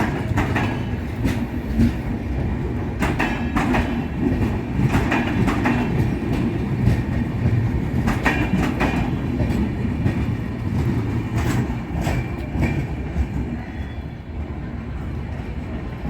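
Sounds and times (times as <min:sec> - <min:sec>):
train coaches rumbling: 0:00.0 - 0:16.0
wheels clanking over rail joints: 0:03.0 - 0:13.6.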